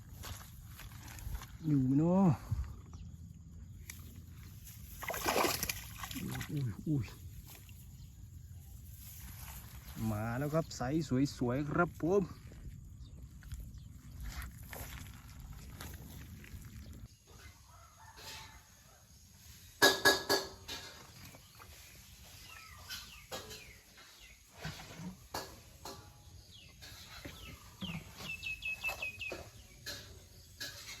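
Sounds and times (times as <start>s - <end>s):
birds calling: 26.5s - 31.0s
high bird chirps: 27.0s - 29.9s.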